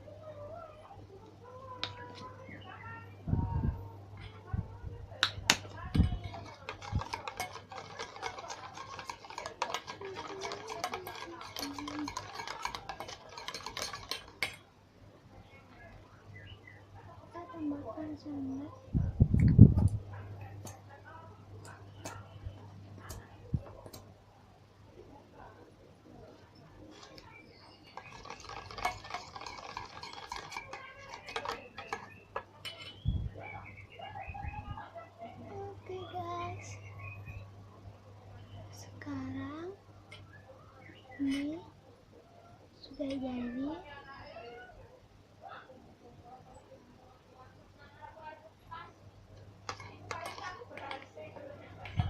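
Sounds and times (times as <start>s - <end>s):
spoon clicking and scraping bowl: 5.2s - 14.7s, 26.9s - 33.1s, 49.4s - 52.0s
spoon stirring slime in bowl: 5.2s - 14.7s, 26.9s - 33.1s, 49.4s - 52.0s.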